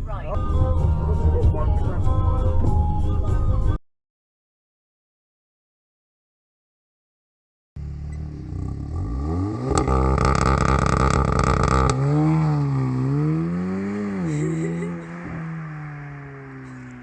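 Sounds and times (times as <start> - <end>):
car engine revving with crackling: 7.8 - 17.0.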